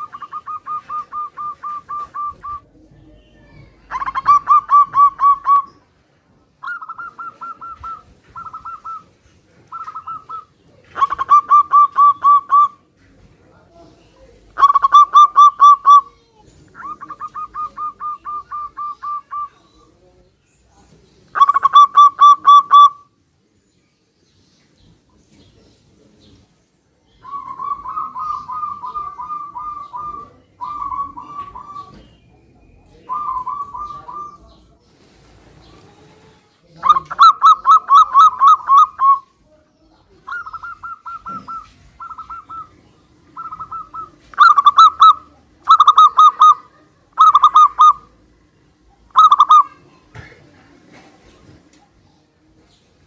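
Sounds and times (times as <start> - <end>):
doves cooing: 0.0 - 5.9, 6.6 - 12.9, 14.5 - 19.9, 21.3 - 23.1, 27.2 - 32.3, 32.9 - 36.2, 36.8 - 39.3, 40.2 - 48.3, 49.0 - 49.8.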